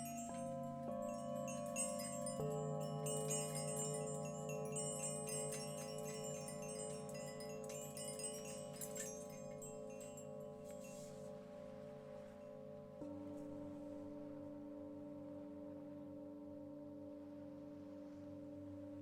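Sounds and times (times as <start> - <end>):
chimes tinkling: 0.0 - 11.4
singing bowls humming: 0.0 - 16.0.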